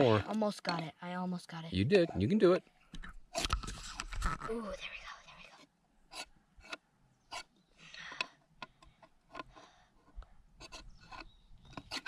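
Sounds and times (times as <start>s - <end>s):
knife scraping ferrocerium rod: 6.1s - 7.6s, 9.0s - 12.0s.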